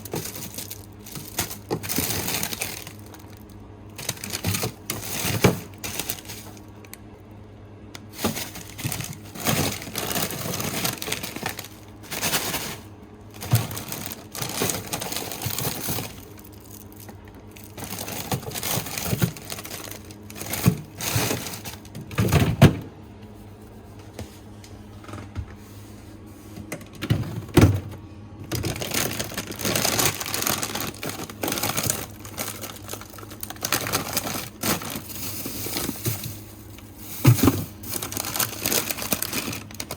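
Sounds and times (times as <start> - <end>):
containers knocking and clunking: 0.0 - 3.3, 13.4 - 23.0, 26.6 - 39.9
plastic packaging rustling and crinkling: 0.0 - 7.2, 8.0 - 22.8, 26.2 - 39.9.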